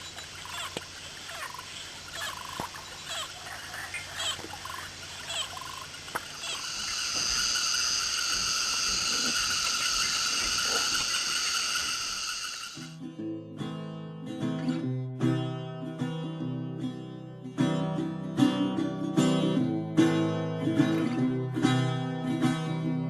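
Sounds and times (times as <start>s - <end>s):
short chirping calls: 0.0s - 12.9s
shrill drone of calling animals: 0.0s - 13.0s.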